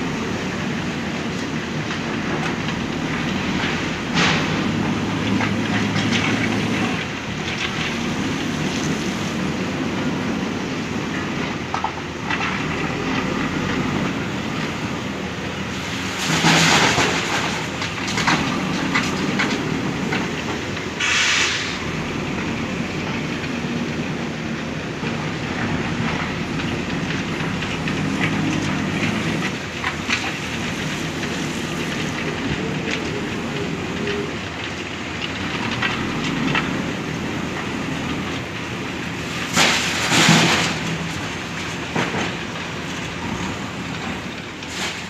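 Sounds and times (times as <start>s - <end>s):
diesel engine running: 0.0s - 45.0s
short hissing bursts: 21.0s - 21.8s.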